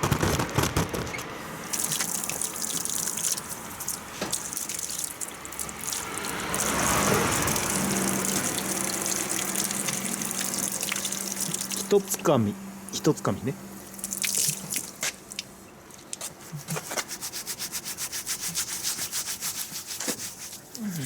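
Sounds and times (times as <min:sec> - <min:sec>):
tap water running into sink: 0:01.7 - 0:12.0, 0:13.9 - 0:15.5.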